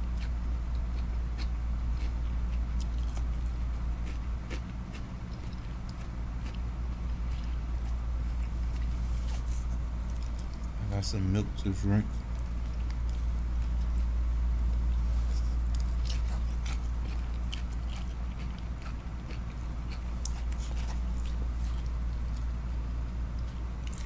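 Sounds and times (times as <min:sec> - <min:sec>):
person chewing and biting food: 0:00.0 - 0:10.8, 0:12.1 - 0:24.0
steady low hum: 0:00.0 - 0:24.0.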